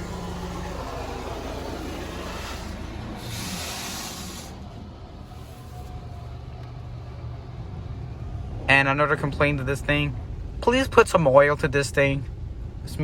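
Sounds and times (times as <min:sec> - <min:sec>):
water spraying onto car: 0:00.0 - 0:05.9.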